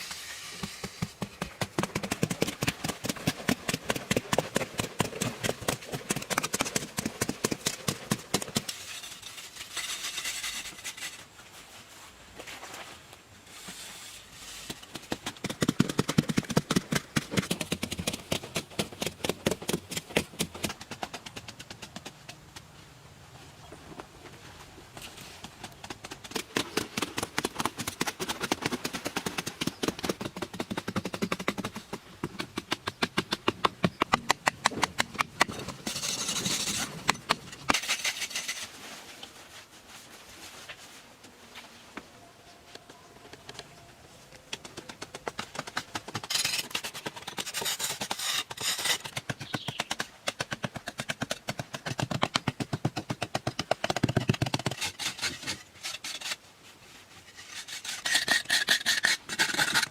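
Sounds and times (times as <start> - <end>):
rapid short scraping strokes: 54.6 - 59.9.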